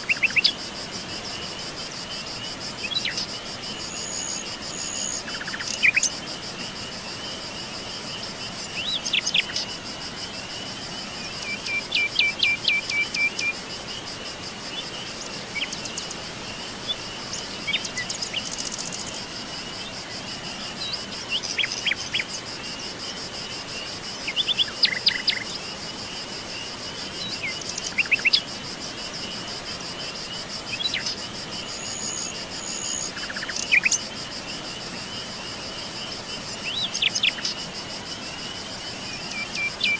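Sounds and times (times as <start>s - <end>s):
high-pitched insect trill: 0.0s - 39.9s.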